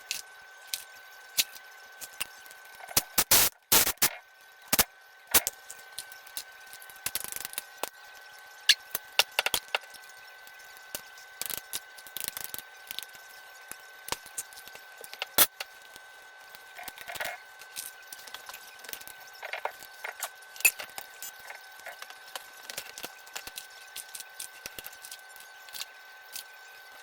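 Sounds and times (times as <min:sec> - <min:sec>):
tools and metal parts clinking: 0:19.4 - 0:21.0.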